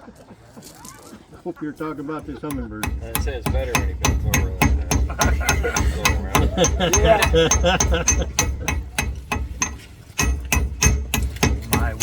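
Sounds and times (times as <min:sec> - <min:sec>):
people laughing: 0:00.0 - 0:03.8, 0:04.4 - 0:08.8
people talking: 0:00.6 - 0:08.9, 0:11.6 - 0:12.0
hammer striking metal: 0:02.2 - 0:12.0.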